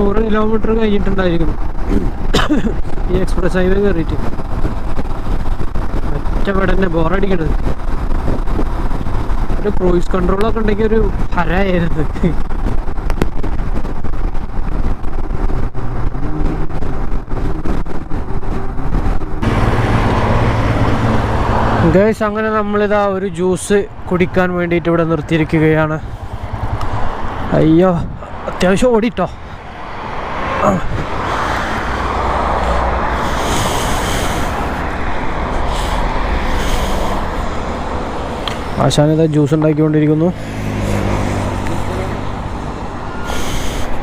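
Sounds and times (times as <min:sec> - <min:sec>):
low wind rumble: 0:00.0 - 0:44.0
road traffic rushing: 0:00.0 - 0:44.0
motorcycle engine running: 0:12.4 - 0:21.8, 0:25.3 - 0:27.7.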